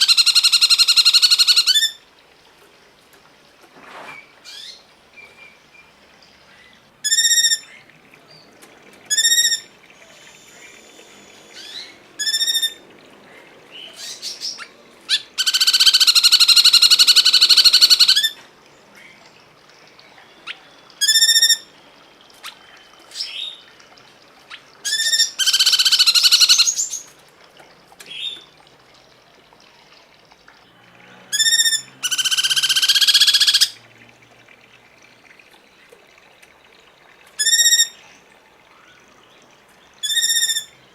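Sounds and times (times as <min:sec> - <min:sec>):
harsh buzzing bird trills: 0:31.0 - 0:33.8.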